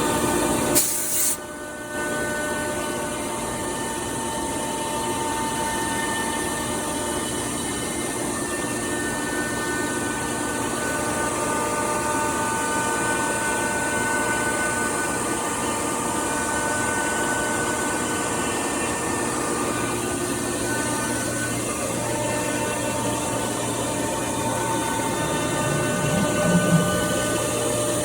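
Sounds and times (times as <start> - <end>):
cnc router running: 1.4 - 18.8, 20.0 - 28.0
high-pitched tones: 25.0 - 27.4.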